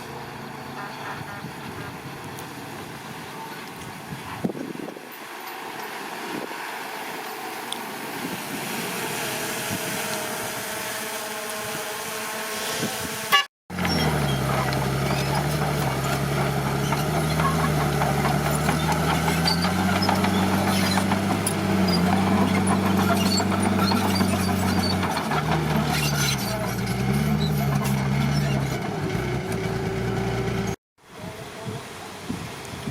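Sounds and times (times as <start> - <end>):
diesel engine running: 13.7 - 30.8.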